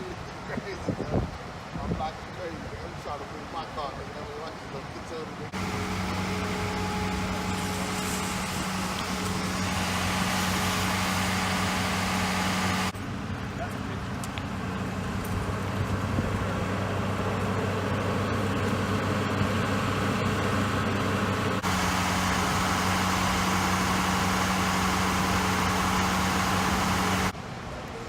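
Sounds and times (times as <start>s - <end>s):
street noise: 0.0s - 28.0s
vehicle engine idling: 5.5s - 27.4s.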